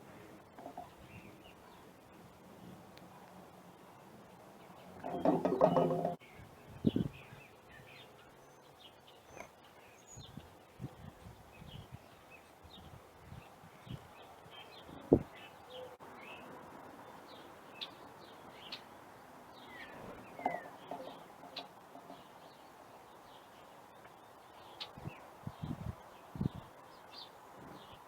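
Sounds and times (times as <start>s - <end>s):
small birds chirping: 0.0s - 28.0s
low knocks: 5.0s - 6.2s, 20.4s - 22.3s.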